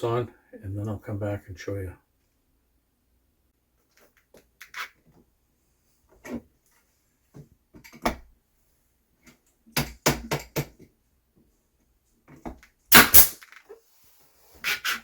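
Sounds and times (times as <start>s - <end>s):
pneumatic nailer shots: 12.9s - 13.5s.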